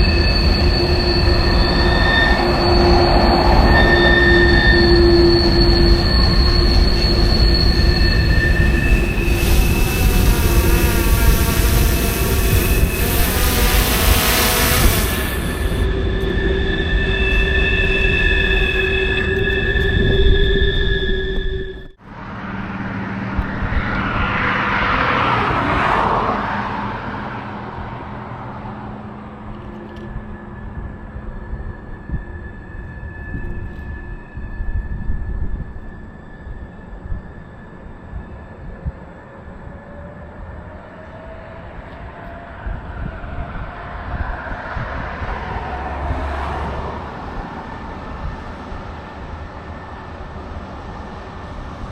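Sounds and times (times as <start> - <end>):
train passing: 0.0 - 19.6, 22.0 - 51.9
rushing noise: 0.0 - 21.0
train wheels squealing: 0.0 - 22.0, 28.2 - 51.9
low drone: 0.0 - 25.7.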